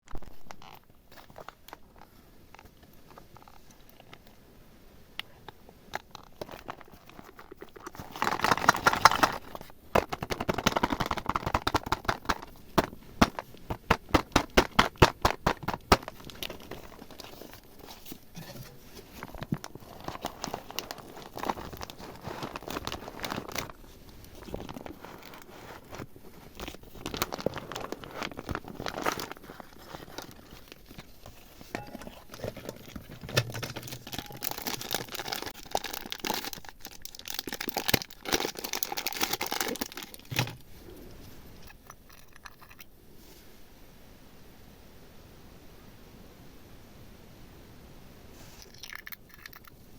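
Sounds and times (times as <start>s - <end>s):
plastic items crinkling and clicking: 0.1s - 4.4s, 5.2s - 40.7s.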